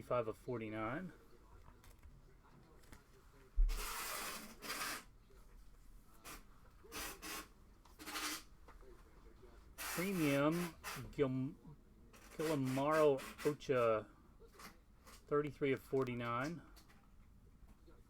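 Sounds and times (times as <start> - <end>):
cards rubbing and sliding: 3.7 - 5.1, 6.3 - 8.5, 12.2 - 13.6.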